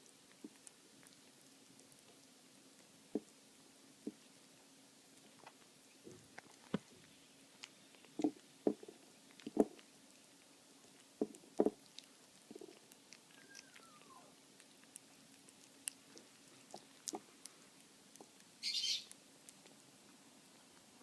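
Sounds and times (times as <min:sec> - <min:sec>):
kittens chewing: 0:00.0 - 0:21.0
kitten mewing: 0:12.5 - 0:14.4.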